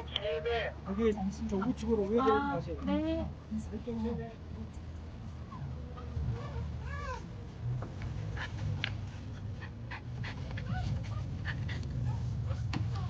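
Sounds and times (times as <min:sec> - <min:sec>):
dog panting and whimpering: 0:08.4 - 0:12.8.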